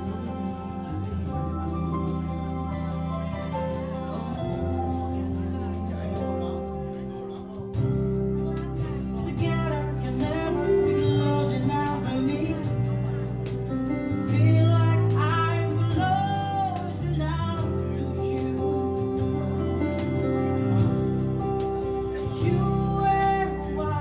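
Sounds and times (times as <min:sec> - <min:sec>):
live pop band playing: 0:00.0 - 0:24.0
person singing: 0:00.0 - 0:24.0.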